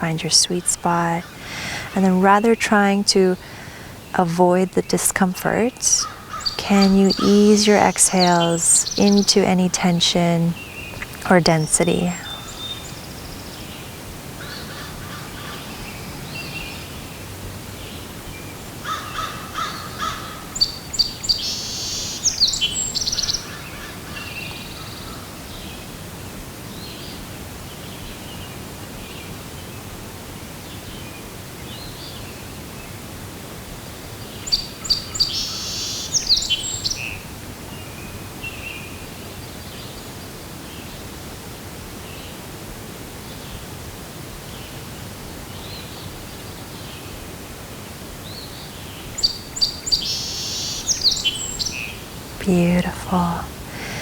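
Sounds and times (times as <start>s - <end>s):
outdoor hiss: 0.0s - 54.0s
songbird trilling: 6.0s - 9.3s.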